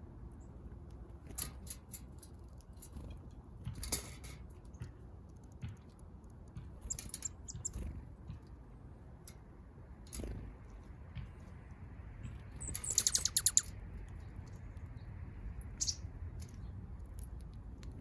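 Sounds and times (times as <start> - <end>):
birds pecking at seed: 0.1 - 18.0
high bird chirps: 6.8 - 7.8, 12.5 - 13.8, 15.7 - 16.7.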